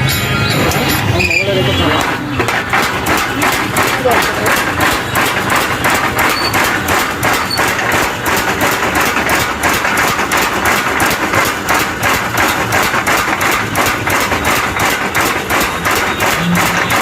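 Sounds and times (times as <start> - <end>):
power hammer pounding iron: 0.0 - 17.0.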